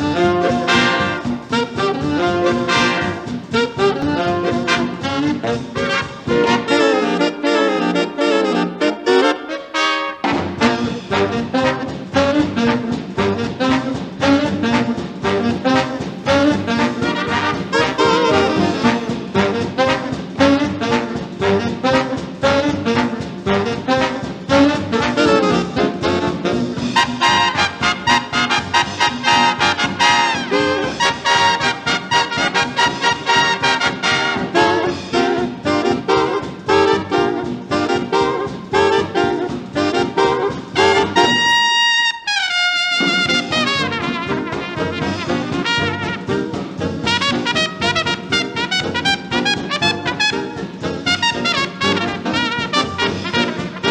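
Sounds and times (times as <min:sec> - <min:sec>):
trumpet holding high note: 0:00.0 - 0:46.4, 0:47.1 - 0:53.9
swing jazz brass band: 0:00.0 - 0:53.9.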